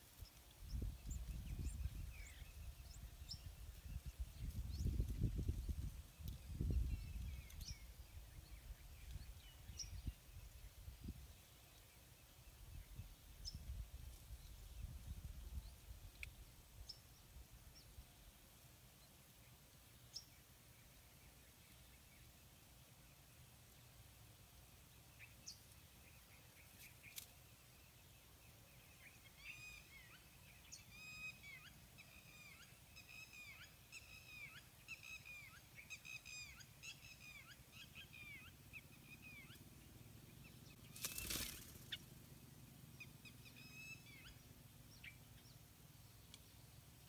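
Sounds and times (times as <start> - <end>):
bird calling faintly: 25.0 - 47.0.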